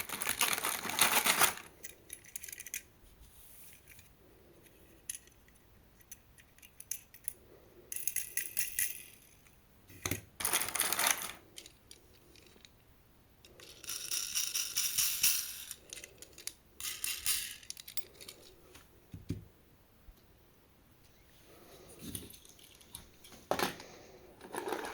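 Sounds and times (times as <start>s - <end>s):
toy cars clattering: 0.0s - 2.9s, 4.7s - 9.6s, 10.4s - 12.8s, 13.4s - 18.6s, 22.1s - 24.9s.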